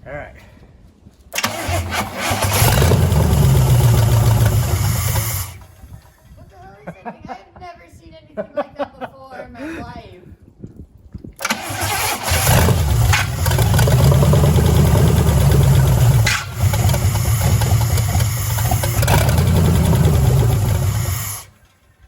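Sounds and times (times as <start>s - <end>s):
car engine cranking and running: 1.3s - 6.4s, 11.4s - 22.0s.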